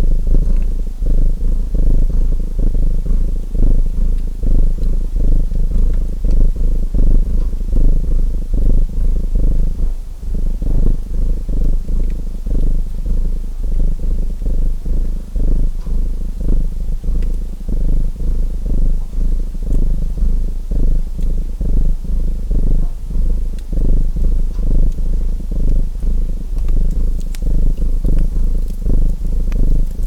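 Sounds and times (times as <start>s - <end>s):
cat purring: 0.0s - 30.0s
faint wood fire crackle: 13.8s - 30.0s.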